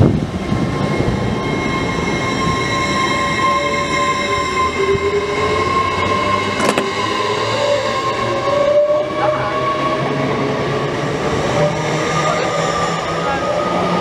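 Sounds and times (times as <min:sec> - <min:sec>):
wheels rumbling on rails: 0:04.3 - 0:07.8.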